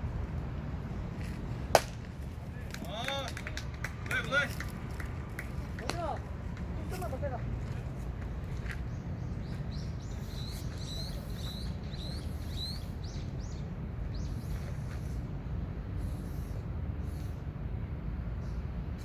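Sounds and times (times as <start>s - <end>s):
low background rumble: 0.0s - 19.0s
bird chirping: 8.5s - 15.0s.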